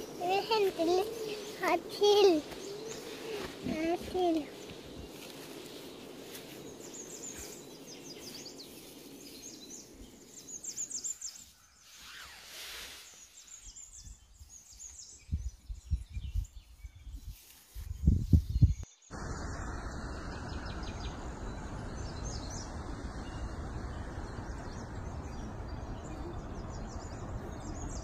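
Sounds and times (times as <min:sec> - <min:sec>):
background hiss: 0:00.0 - 0:14.0
small birds chirping: 0:00.0 - 0:28.0
low bumps: 0:19.2 - 0:28.0.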